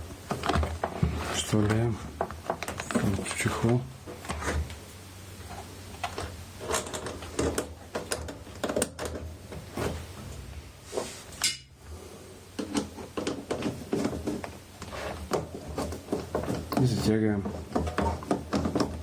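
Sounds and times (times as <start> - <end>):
clicks and taps on plastic: 12.6 - 19.0.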